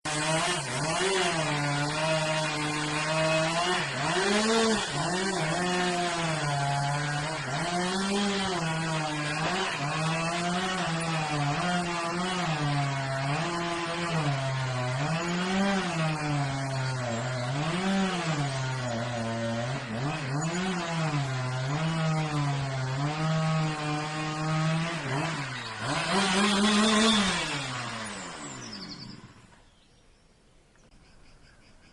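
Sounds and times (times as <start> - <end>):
chainsaw engine revving: 0.0 - 29.7.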